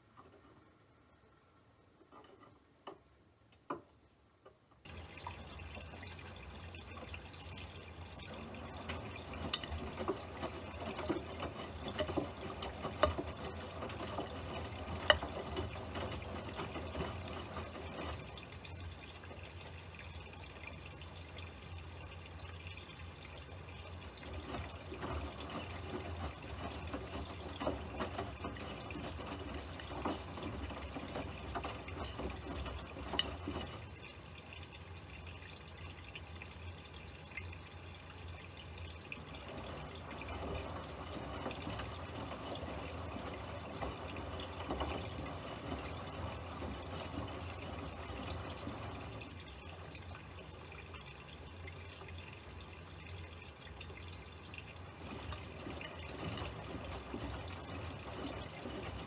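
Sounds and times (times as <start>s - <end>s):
running water: 4.8s - 59.0s.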